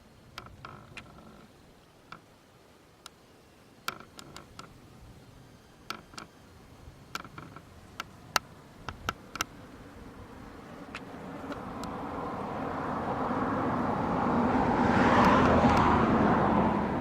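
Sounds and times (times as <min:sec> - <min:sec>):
faint background hiss: 0:00.0 - 0:17.0
sharp clicks and ticks: 0:07.1 - 0:09.6, 0:10.8 - 0:12.0.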